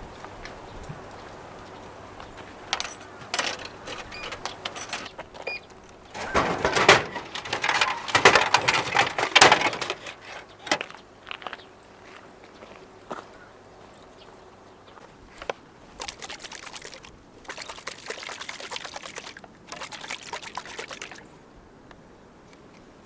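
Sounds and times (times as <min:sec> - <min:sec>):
objects rustling and clattering: 0:02.3 - 0:11.0
small metallic clinks: 0:02.7 - 0:10.9.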